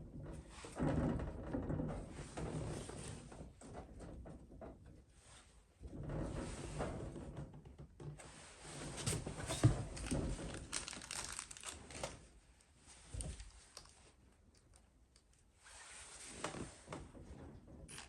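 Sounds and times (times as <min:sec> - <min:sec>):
crinkling and rustling: 0:05.9 - 0:18.0.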